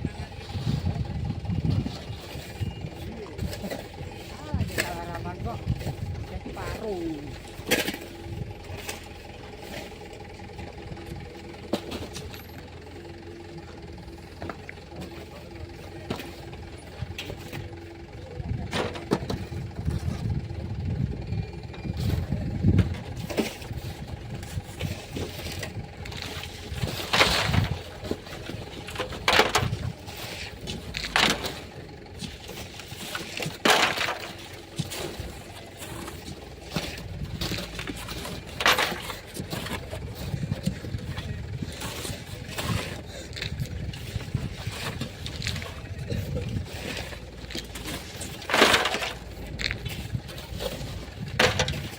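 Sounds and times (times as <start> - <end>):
low engine rumble: 0.0 - 51.9
shovel scraping sand: 26.2 - 51.9.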